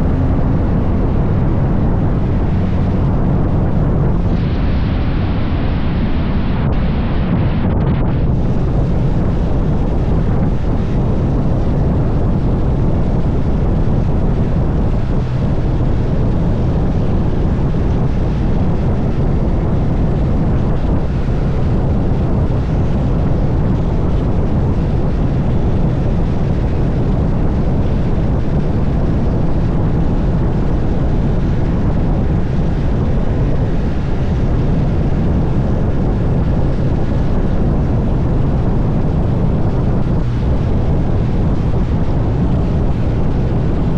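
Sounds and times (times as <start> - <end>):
motorcycle engine drone: 0.0 - 43.9
wind noise on microphone: 0.0 - 43.9.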